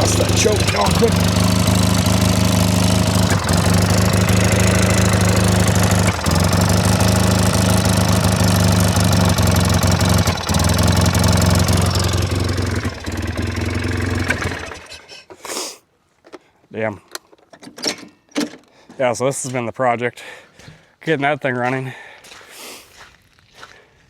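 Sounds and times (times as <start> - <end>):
engine running: 0.0 - 15.1.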